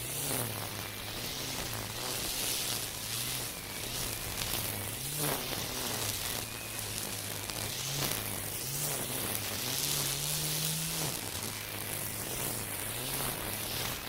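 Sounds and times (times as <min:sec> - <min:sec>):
brush cutter humming: 0:00.0 - 0:14.0
constant hiss: 0:00.0 - 0:14.0.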